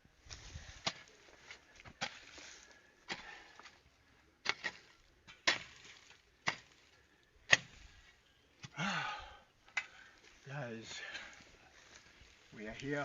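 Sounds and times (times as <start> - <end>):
digging tool chopping into ground: 0.8 - 1.1, 1.9 - 2.3, 4.4 - 6.8, 7.4 - 8.0.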